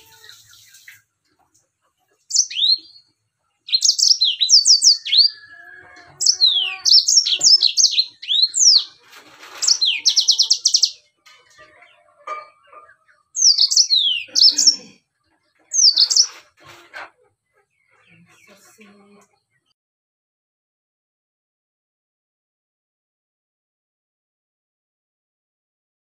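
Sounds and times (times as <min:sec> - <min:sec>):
canary singing: 0:00.0 - 0:18.9.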